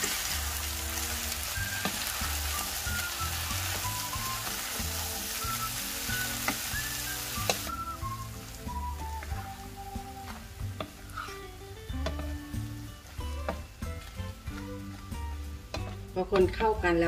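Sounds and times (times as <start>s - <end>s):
background music: 0.0s - 17.0s
noodles sizzling in a frying pan: 0.0s - 17.0s
wooden spatula stirring: 3.3s - 16.7s.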